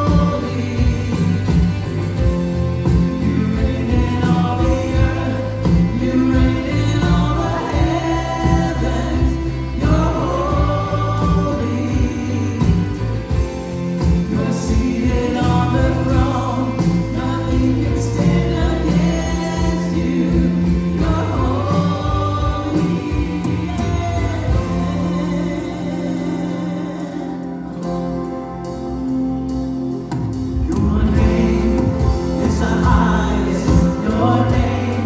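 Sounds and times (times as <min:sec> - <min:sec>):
choir singing gospel: 0:00.0 - 0:35.0.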